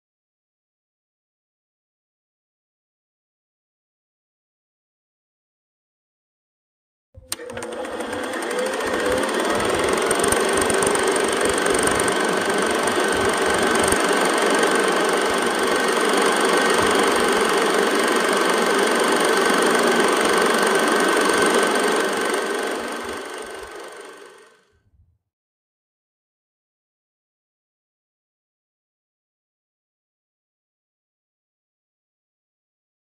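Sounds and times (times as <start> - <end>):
film projector clatter and whir: 7.2 - 24.7.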